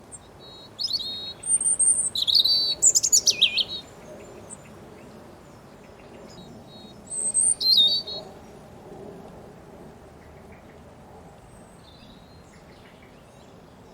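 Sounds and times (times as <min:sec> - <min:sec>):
robin singing: 0:00.1 - 0:04.6, 0:06.4 - 0:08.3.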